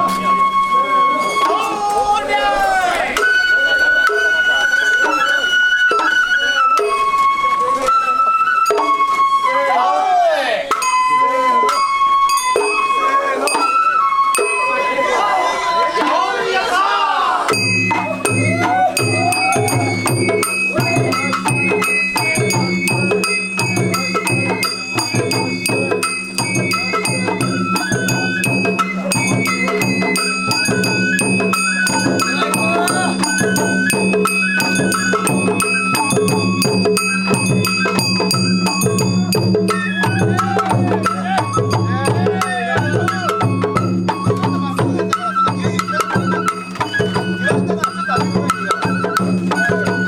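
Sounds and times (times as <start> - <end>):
bamboo flute melody: 0.0 - 50.0
taiko drum strokes: 17.4 - 50.0.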